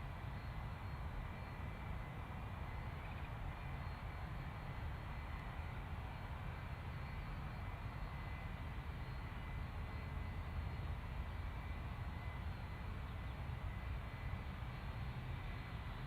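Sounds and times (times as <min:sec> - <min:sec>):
distant jet engines running: 0:00.0 - 0:16.0.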